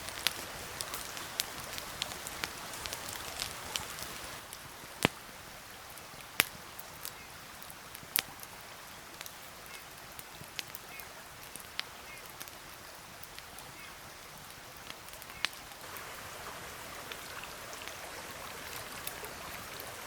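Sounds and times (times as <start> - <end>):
louder raindrop taps: 0.0 - 5.2
raindrops pattering: 0.0 - 20.0.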